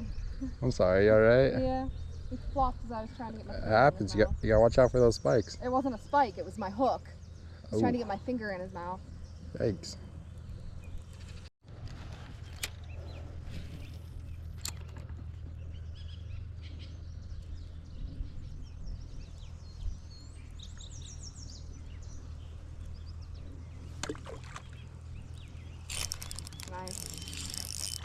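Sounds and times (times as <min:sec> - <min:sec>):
bird chirping: 0:00.0 - 0:11.5, 0:12.4 - 0:28.0
steady low hum: 0:00.0 - 0:28.0.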